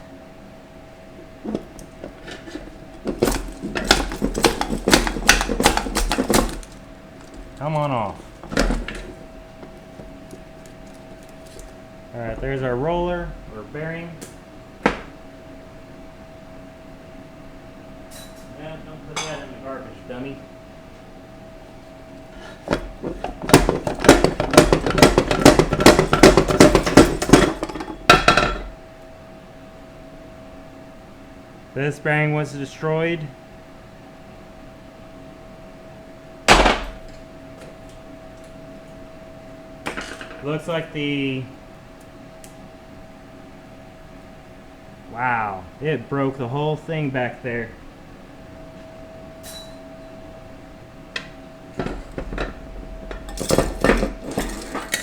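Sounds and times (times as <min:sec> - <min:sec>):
metal parts clinking and clattering: 0:01.5 - 0:07.6, 0:22.7 - 0:28.7, 0:51.8 - 0:55.0.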